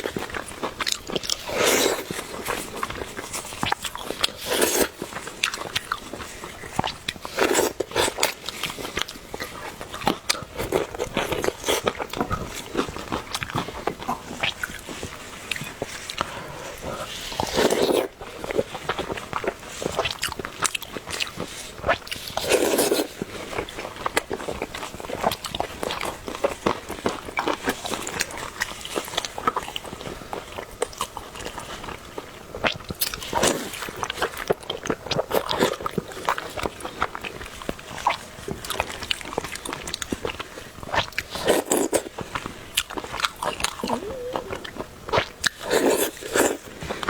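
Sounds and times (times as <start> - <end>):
chewing and biting: 0.0 - 47.0
loud slurps: 43.5 - 44.9.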